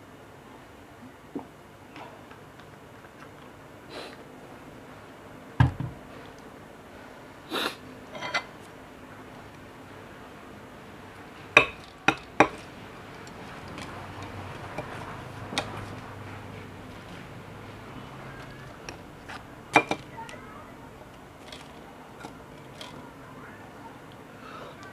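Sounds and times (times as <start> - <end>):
tableware knocking and clinking: 8.1 - 8.5, 11.6 - 12.7, 19.7 - 20.0.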